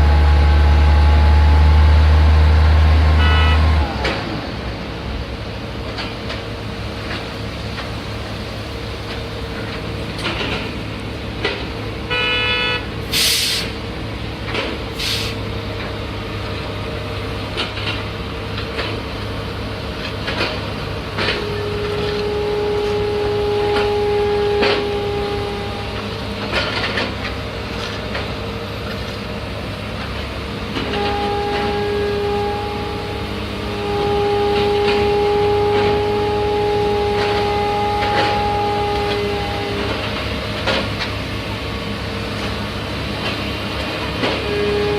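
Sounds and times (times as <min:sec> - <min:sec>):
construction machinery engine running: 0:00.0 - 0:44.9
steady horn-like tone: 0:03.0 - 0:04.0, 0:12.1 - 0:12.9, 0:21.2 - 0:26.7, 0:30.7 - 0:40.8, 0:44.2 - 0:44.9
horn-like toot: 0:03.1 - 0:04.0, 0:12.1 - 0:12.9, 0:21.2 - 0:26.2, 0:30.8 - 0:40.8, 0:44.2 - 0:44.9
knocks and clanks: 0:09.0 - 0:10.8, 0:20.0 - 0:22.3, 0:25.9 - 0:29.2, 0:37.1 - 0:41.2.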